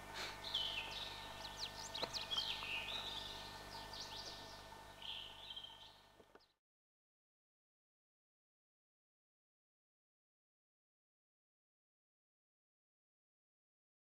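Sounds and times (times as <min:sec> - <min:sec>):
faint steady background hum: 0:00.0 - 0:06.6
birds chirping and calling: 0:00.1 - 0:06.6.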